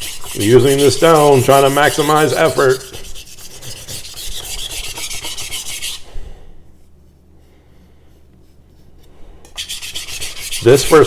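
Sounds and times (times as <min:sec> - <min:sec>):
knife scraping on whetstone: 0:00.0 - 0:06.1, 0:08.4 - 0:11.0.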